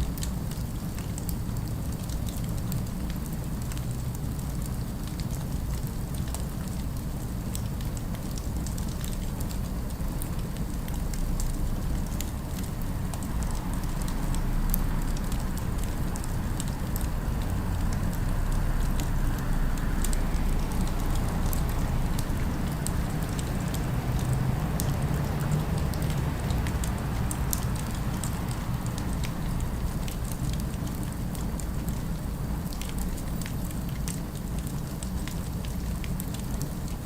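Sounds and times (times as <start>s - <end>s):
city ambience rumble: 0.0s - 37.0s
wood fire crackling and popping: 20.0s - 37.0s.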